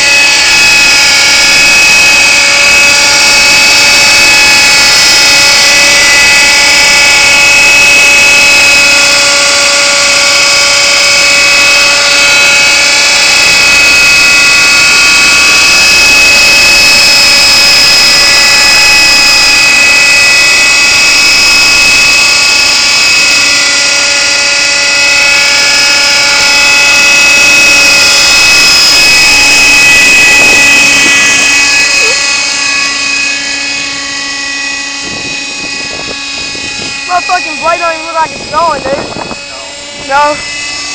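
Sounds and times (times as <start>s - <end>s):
model helicopter engine whine: 0.0s - 40.9s.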